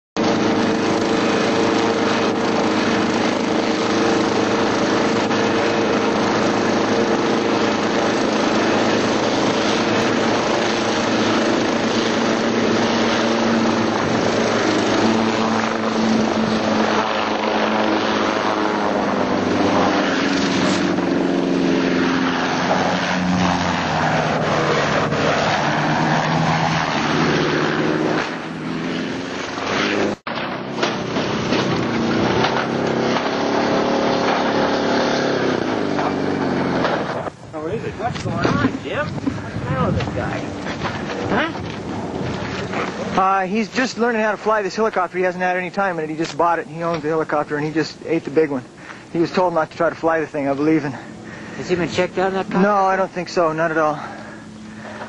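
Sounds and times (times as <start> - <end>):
helicopter engine and rotor: 0.2 - 34.6.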